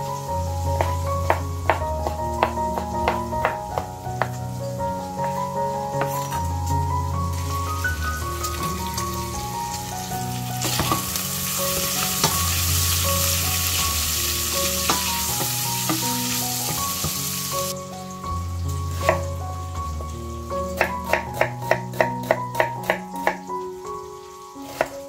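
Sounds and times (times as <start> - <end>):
background music: 0.0 - 25.0
meat sizzling in fat: 0.0 - 25.0.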